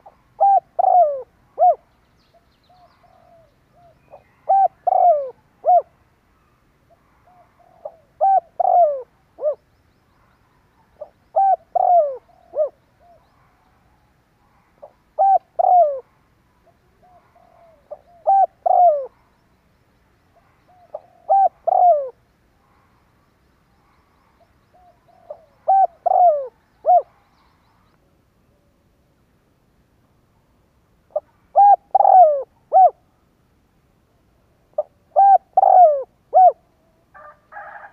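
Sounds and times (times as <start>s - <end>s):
dove cooing: 0.0s - 6.0s, 7.0s - 9.6s, 10.9s - 13.5s, 14.6s - 19.2s, 20.4s - 22.2s, 24.7s - 27.3s, 31.1s - 33.1s, 34.8s - 37.9s.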